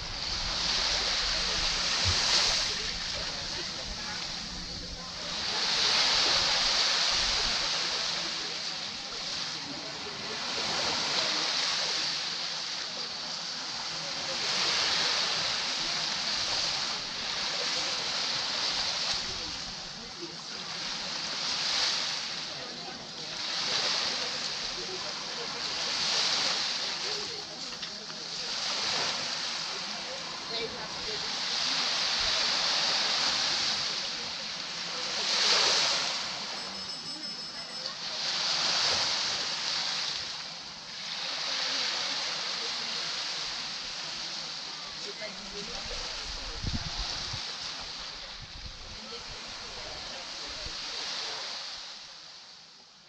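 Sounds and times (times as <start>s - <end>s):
sea waves washing on beach: 0.0s - 53.0s.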